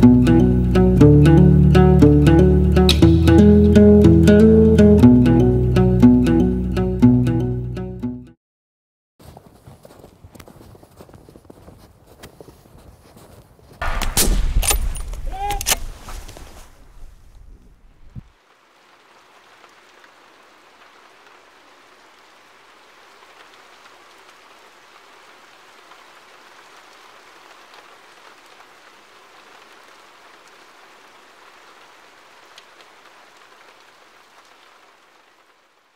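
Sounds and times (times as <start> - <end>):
steady rain hiss: 13.8 - 35.9.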